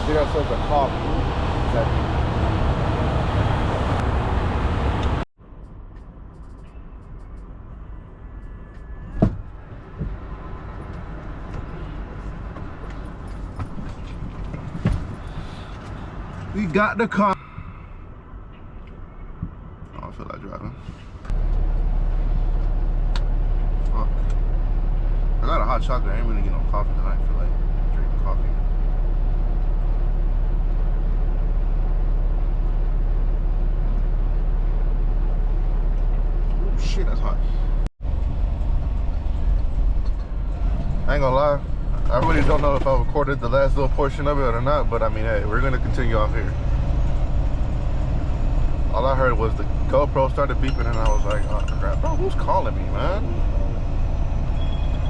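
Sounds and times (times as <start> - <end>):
truck engine droning: 0.0 - 5.3, 21.3 - 55.0
low vehicle rumble: 0.0 - 55.0.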